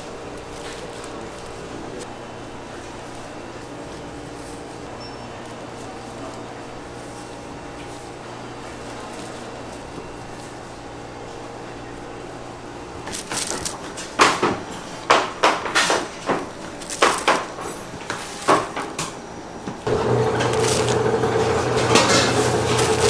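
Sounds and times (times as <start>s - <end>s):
steady machine hum: 0.0s - 13.1s, 19.0s - 23.0s.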